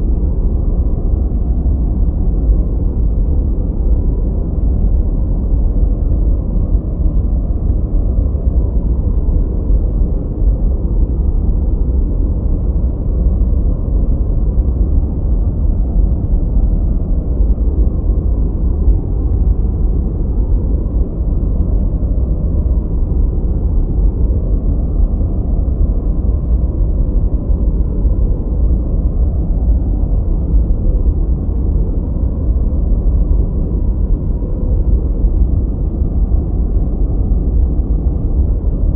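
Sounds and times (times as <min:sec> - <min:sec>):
deep muffled white noise: 0:00.0 - 0:38.9.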